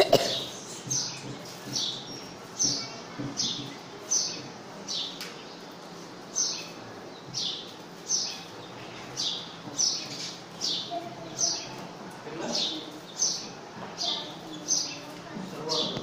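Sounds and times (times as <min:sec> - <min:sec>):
bird chirping: 0:00.1 - 0:05.6.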